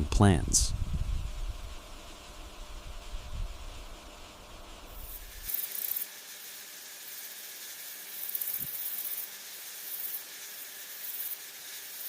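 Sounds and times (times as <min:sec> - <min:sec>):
high grainy buzzing: 0:00.0 - 0:12.0
steady background hiss: 0:00.0 - 0:12.0.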